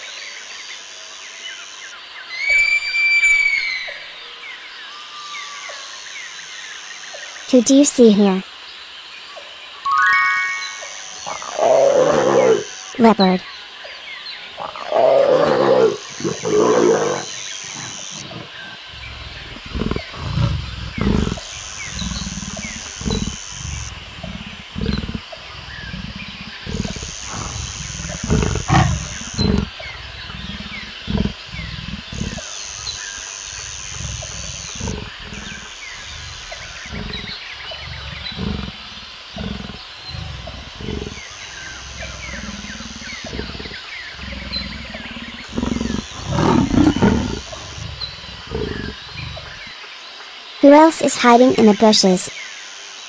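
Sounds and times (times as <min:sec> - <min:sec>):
leopard rasping grunts: 0:14.4 - 0:49.8.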